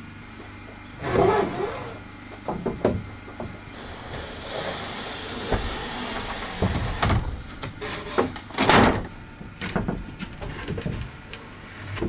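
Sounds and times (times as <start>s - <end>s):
wooden knocks and thuds: 2.4s - 11.2s
loud scrape on wood: 3.7s - 8.8s.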